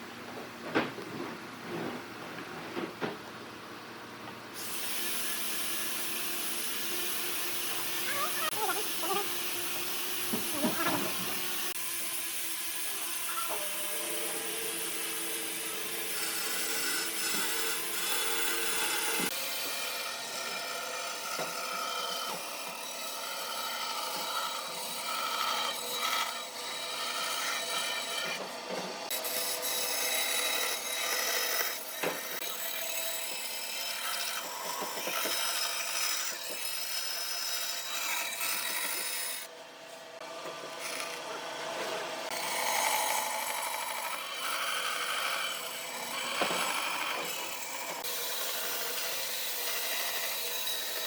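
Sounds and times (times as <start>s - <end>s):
tool rasping on wood: 4.6s - 20.6s, 40.7s - 41.3s, 42.3s - 51.0s.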